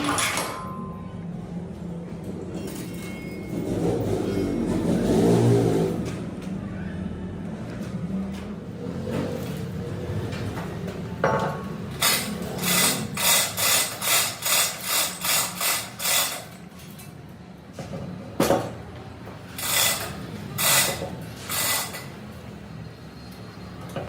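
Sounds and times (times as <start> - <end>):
low workshop hum: 0.0 - 24.0
hand tool scraping on metal: 12.0 - 16.6, 19.5 - 22.2.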